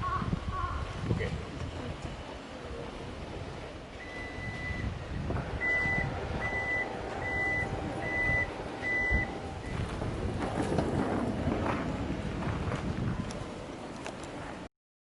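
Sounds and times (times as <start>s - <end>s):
low vehicle rumble: 0.0s - 14.7s
vehicle reversing alarm beeping: 4.0s - 9.9s.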